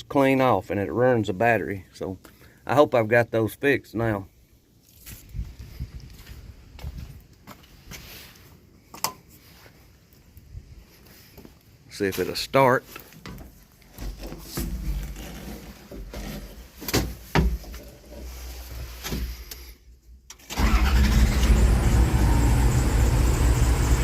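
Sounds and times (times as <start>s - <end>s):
engine starting and running: 20.3s - 24.0s.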